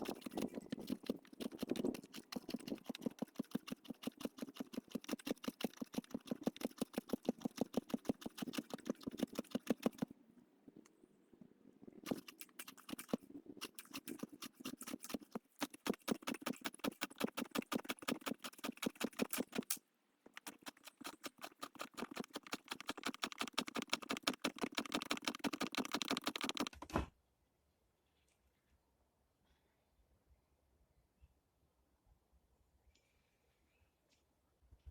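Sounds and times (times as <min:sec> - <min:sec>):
rapid even clicking: 0:00.0 - 0:10.1, 0:12.0 - 0:26.8.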